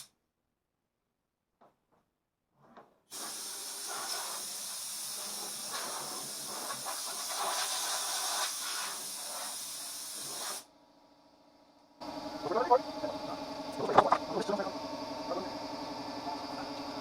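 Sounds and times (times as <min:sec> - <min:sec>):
compressed air hissing: 0:03.1 - 0:10.7.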